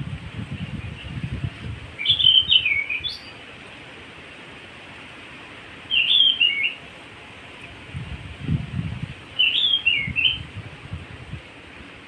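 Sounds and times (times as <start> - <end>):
steady background hiss: 0.0 - 12.0
bird singing whistled notes: 2.0 - 3.4, 5.9 - 6.8, 9.4 - 10.5.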